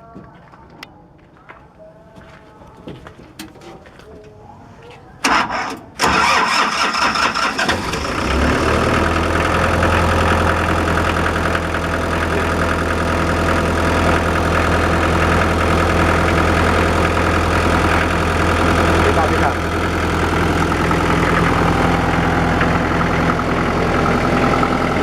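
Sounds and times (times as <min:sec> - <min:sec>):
diesel generator engine idling: 0:05.2 - 0:25.0.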